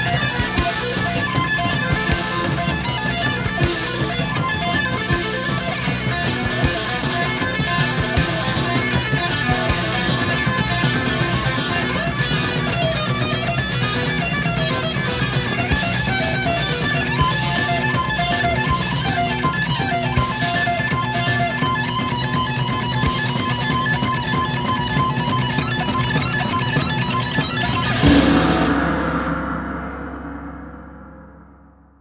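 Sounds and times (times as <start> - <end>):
hard rock music: 0.0 - 32.0
sharp high cymbal crash: 27.8 - 32.0.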